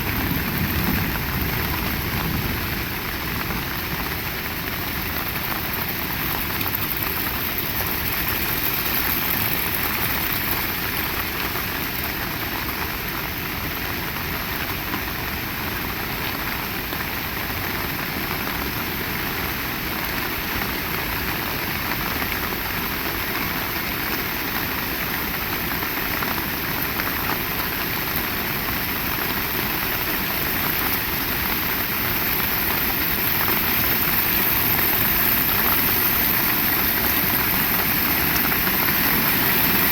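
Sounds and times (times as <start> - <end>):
strong wind: 0.0 - 5.0
heavy rain pouring: 0.0 - 39.9.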